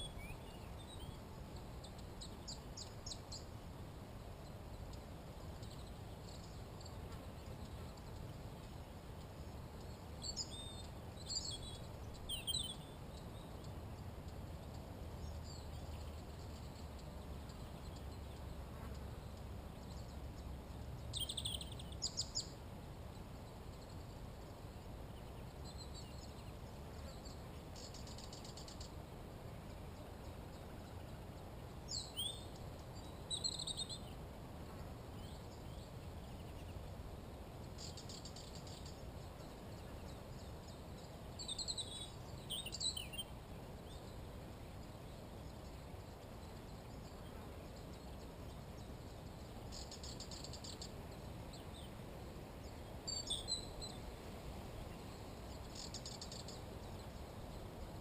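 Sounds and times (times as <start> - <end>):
birds chirping: 4.4 - 29.0, 37.6 - 57.6.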